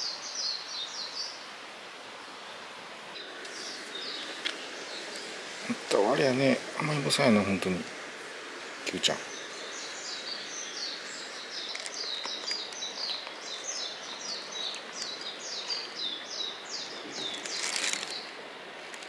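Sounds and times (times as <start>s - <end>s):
bird chirping: 3.2s - 5.2s, 9.0s - 18.4s
short rustle: 17.0s - 19.0s.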